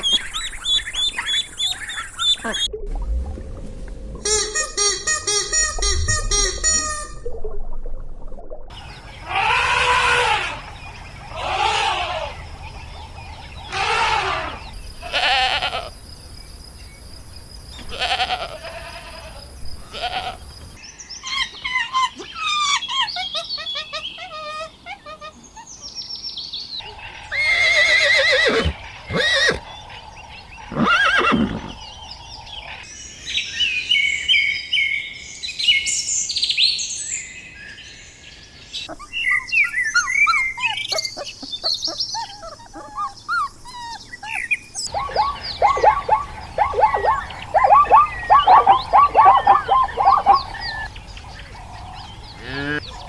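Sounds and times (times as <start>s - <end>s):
birds chirping and calling: 0.0s - 2.7s, 8.7s - 15.8s, 21.1s - 34.5s, 38.6s - 53.0s
loud long animal calls: 8.8s - 12.5s, 13.6s - 15.7s, 44.9s - 53.0s.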